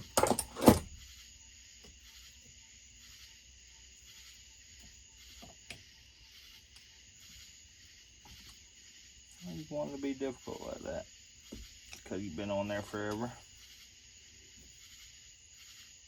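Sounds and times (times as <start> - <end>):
crickets chirring: 0.0 - 16.0
small regular ticks: 0.9 - 16.0.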